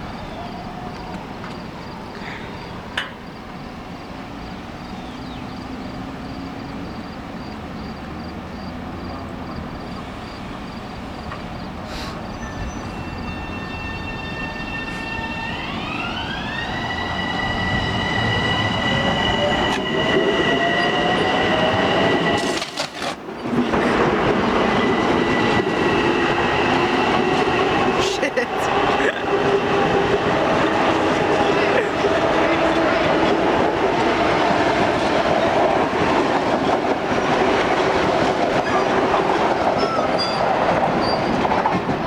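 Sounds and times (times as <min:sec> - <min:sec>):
electric train approaching: 0:00.0 - 0:42.0.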